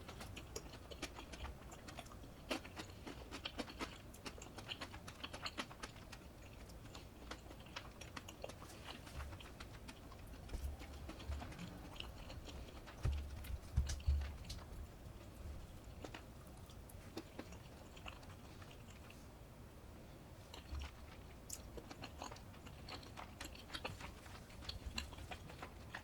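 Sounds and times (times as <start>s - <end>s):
crunchy chewing: 0.0s - 19.3s, 20.4s - 26.0s.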